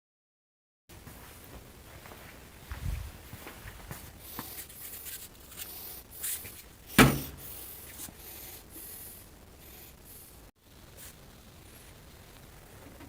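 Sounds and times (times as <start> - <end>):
handling rubbing and scraping: 2.8 - 8.7.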